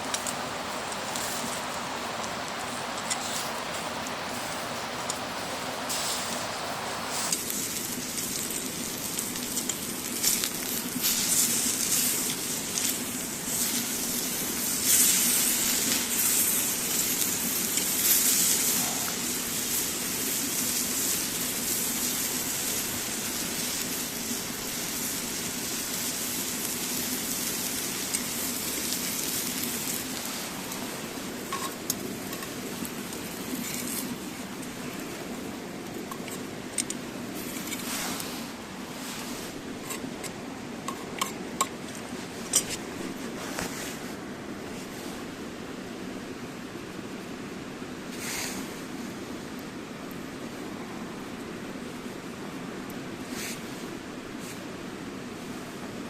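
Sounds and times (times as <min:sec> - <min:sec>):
campfire crackling and popping: 0:00.0 - 0:43.3.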